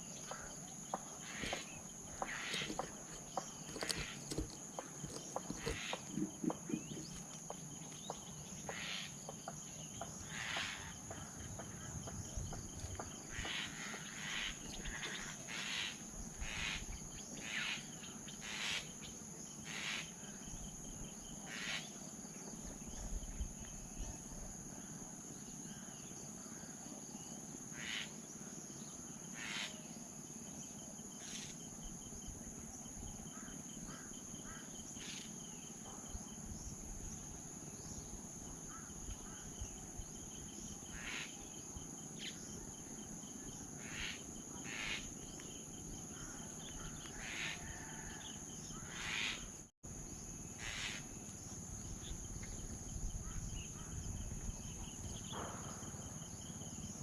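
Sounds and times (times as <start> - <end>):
bird calls: 0.0 - 20.4, 43.4 - 49.5, 50.6 - 56.9
crickets droning: 0.0 - 57.0.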